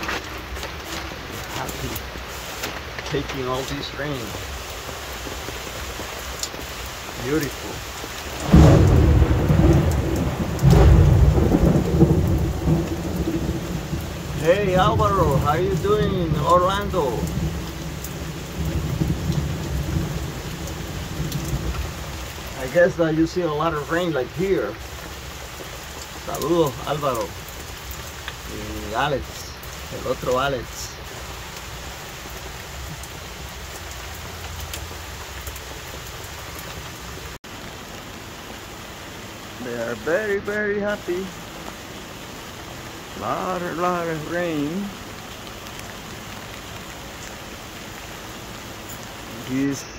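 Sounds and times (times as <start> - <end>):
heavy rain: 0.0 - 49.9
thunder rumbling: 7.1 - 27.8.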